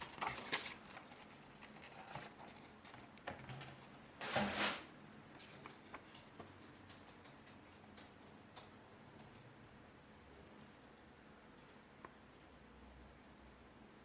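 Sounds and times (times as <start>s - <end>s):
packaging rustle: 0.0s - 3.1s
light clicks and taps: 5.4s - 9.5s.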